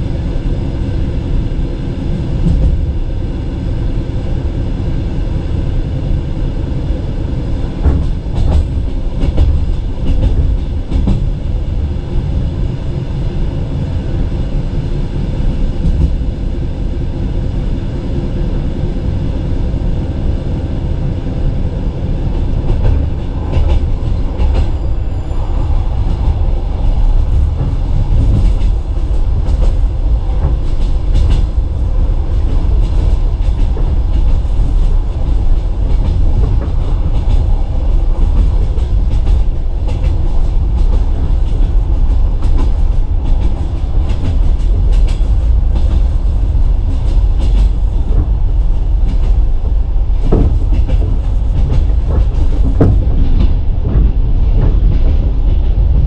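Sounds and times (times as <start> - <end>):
train wheels rumbling on rails: 0.0 - 56.0
loud knocks: 50.3 - 54.8.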